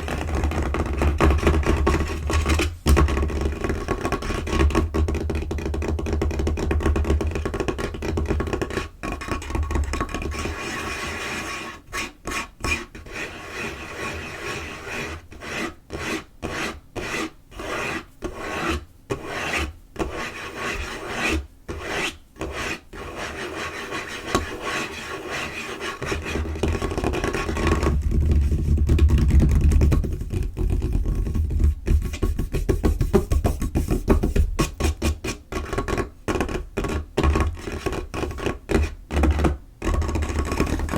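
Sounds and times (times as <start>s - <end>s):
fingernails scratching a tabletop: 10.2s - 28.6s.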